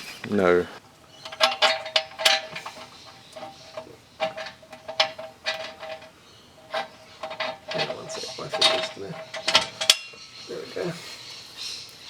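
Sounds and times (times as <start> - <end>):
metallic clinks and knocks: 1.2 - 10.3.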